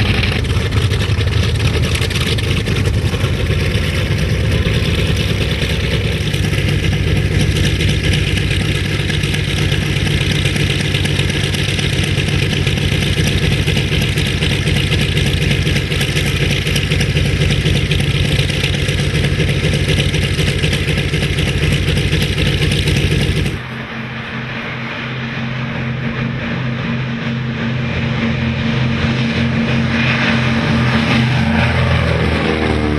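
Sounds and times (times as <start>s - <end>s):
propeller aircraft engine: 0.0s - 32.9s
heavy rushing noise: 18.8s - 32.9s.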